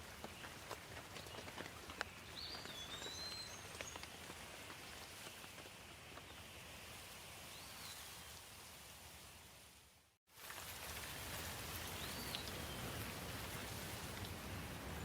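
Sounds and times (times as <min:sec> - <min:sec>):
rain falling: 0:10.4 - 0:15.0.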